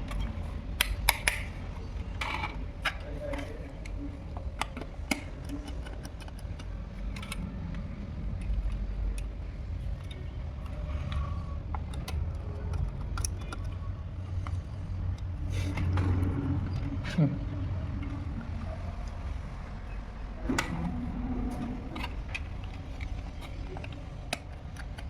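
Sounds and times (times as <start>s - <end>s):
small clicks and clatters of hand-work: 0.0s - 17.3s, 21.4s - 25.0s
steady low rumble: 6.4s - 25.0s.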